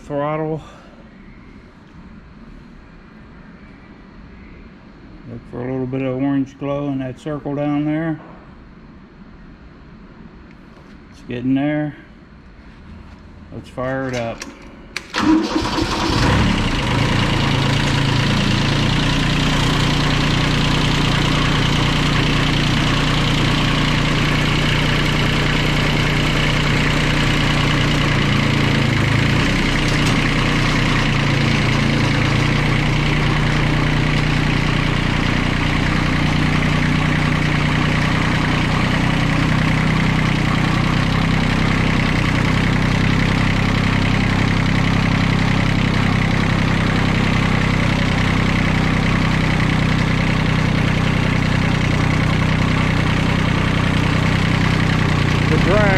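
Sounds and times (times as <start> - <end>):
tractor diesel engine starting: 13.9 - 55.9.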